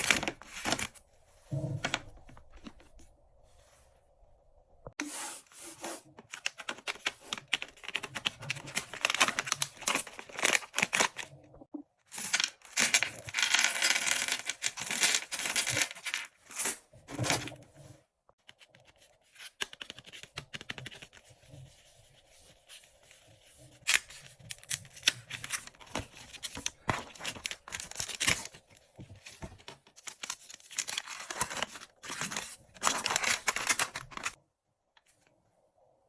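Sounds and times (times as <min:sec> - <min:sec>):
candy wrappers crinkling: 0:06.4 - 0:11.4, 0:30.0 - 0:34.4.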